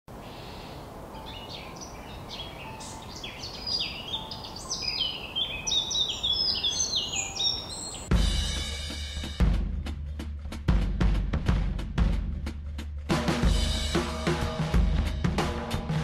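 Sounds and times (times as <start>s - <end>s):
birds chirping: 0.1s - 8.3s
music with heavy drum hit: 8.1s - 16.0s.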